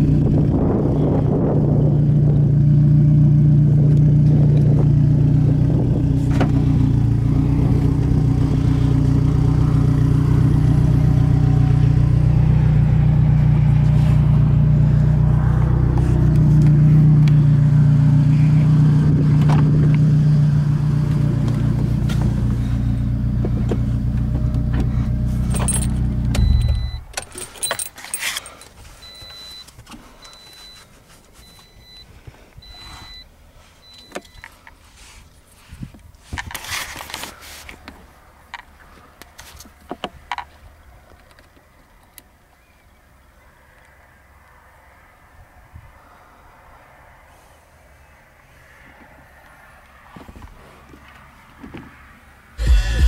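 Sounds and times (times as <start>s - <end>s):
car engine idling: 0.0s - 29.6s
keys jangling: 25.4s - 29.4s
faint repeating electronic chime: 26.4s - 27.1s.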